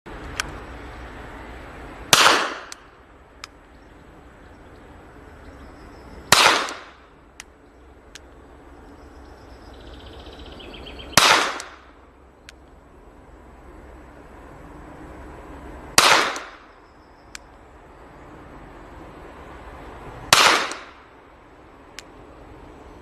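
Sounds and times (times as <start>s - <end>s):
revolver shots echoing: 2.1s - 2.8s, 6.3s - 7.0s, 11.1s - 11.9s, 16.0s - 16.7s, 20.3s - 21.0s.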